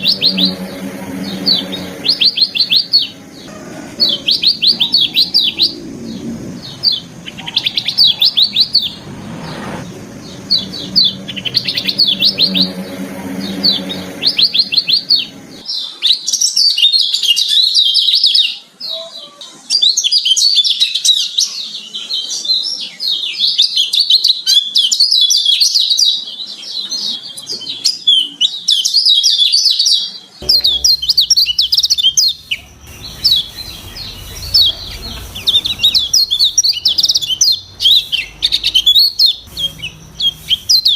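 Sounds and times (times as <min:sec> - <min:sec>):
low background hum: 0:00.0 - 0:15.6, 0:30.4 - 0:40.9
bird singing high chirps and trills: 0:00.0 - 0:18.5, 0:30.4 - 0:40.9.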